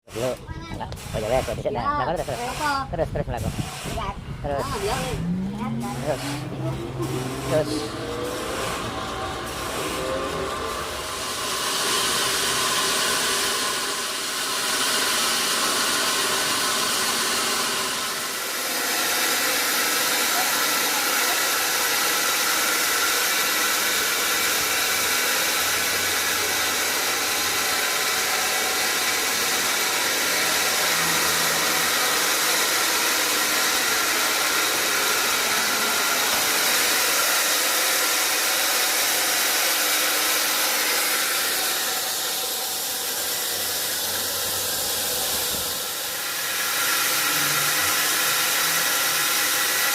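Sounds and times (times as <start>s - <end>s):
sawmill machinery hissing and whining: 0.0s - 49.9s.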